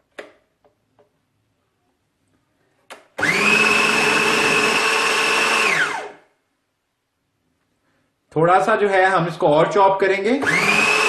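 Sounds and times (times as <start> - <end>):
food chopper motor whine: 3.2 - 6.3, 10.4 - 11.0.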